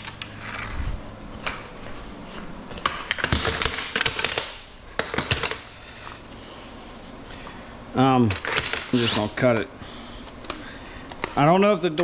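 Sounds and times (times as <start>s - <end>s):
scrap metal clinking and clattering: 2.7s - 6.6s.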